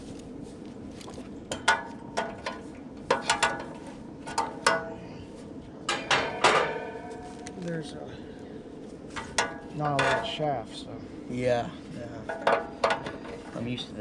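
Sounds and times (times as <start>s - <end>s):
metal tools clanking on metal: 1.5s - 4.9s, 5.9s - 7.2s, 9.1s - 10.5s, 12.2s - 13.8s.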